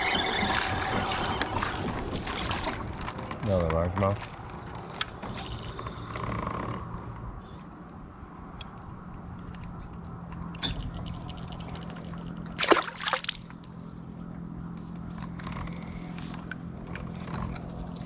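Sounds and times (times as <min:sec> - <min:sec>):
water sloshing and splashing: 0:00.1 - 0:03.4, 0:10.7 - 0:13.9.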